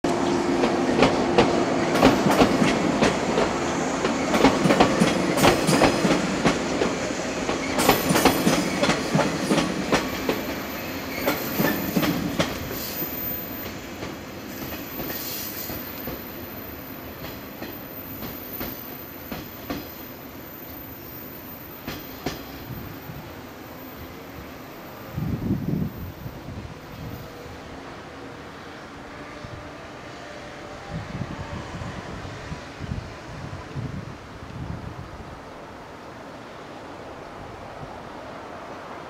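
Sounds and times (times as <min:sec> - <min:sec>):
train wheels clattering over rail joints: 0:00.2 - 0:16.2.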